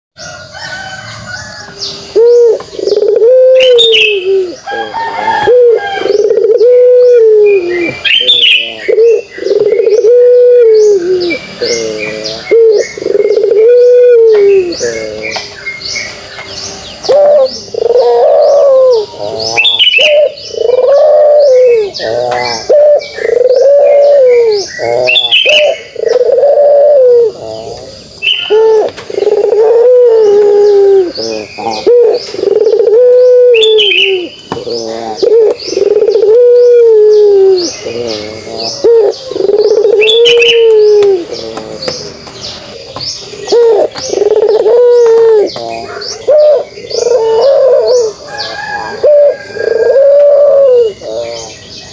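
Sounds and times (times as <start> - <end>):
dove cooing: 2.1 - 15.6, 16.9 - 51.9.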